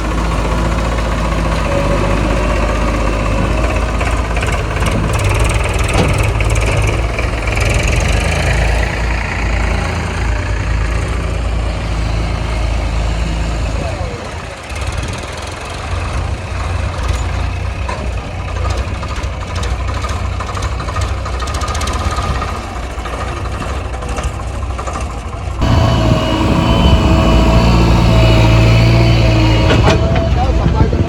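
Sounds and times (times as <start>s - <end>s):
diesel engines of heavy machinery: 0.0s - 31.0s
steady machine whine: 25.6s - 31.0s.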